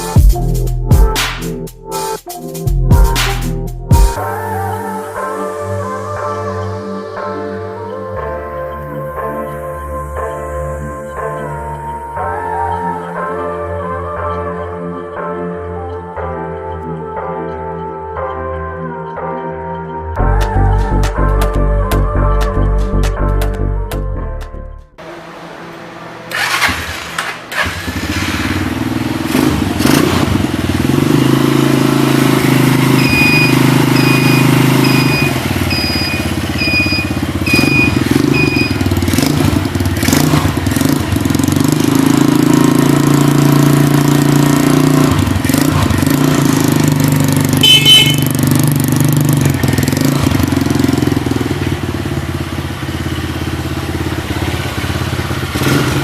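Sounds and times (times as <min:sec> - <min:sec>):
quad bike engine running: 0:25.1 - 0:56.0
short beeps: 0:32.9 - 0:38.8, 0:47.6 - 0:48.4.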